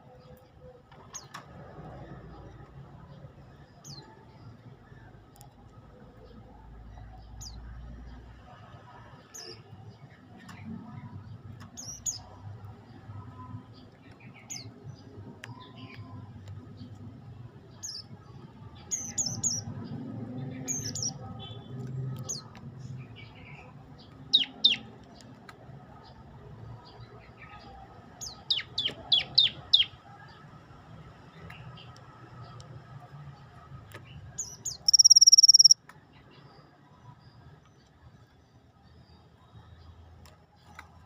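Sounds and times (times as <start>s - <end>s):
songbird chirping: 18.8s - 26.2s, 26.8s - 30.5s, 33.4s - 41.0s.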